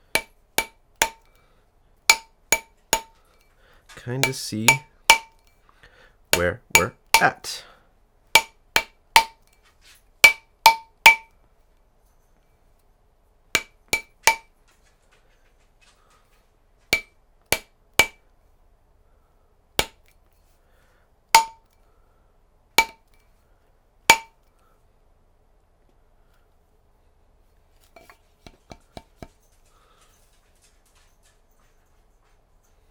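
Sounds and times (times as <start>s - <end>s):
mallet striking metal ring: 0.2s - 1.3s, 2.1s - 3.1s, 4.2s - 5.4s, 6.4s - 7.5s, 8.4s - 9.4s, 10.2s - 11.3s, 13.6s - 14.5s, 17.0s - 18.2s, 21.4s - 21.7s, 22.8s - 23.0s, 24.1s - 24.4s.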